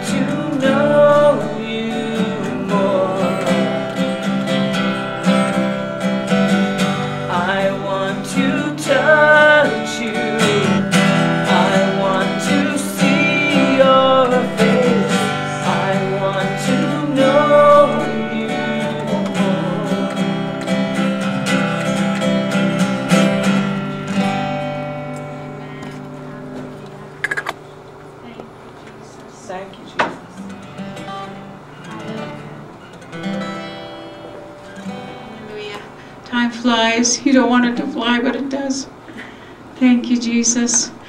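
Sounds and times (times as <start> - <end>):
worship song music: 0.0 - 26.0
strummed acoustic guitar: 0.0 - 28.8, 30.2 - 41.0.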